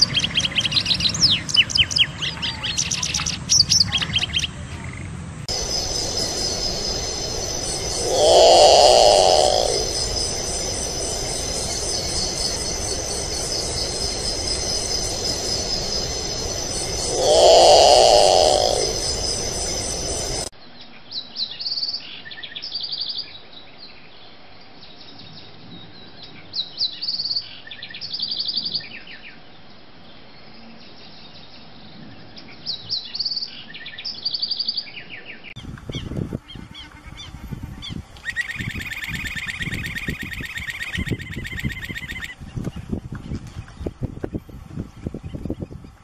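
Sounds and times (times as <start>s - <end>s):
fast high trill: 5.5s - 20.5s
songbird chirping: 5.5s - 20.5s.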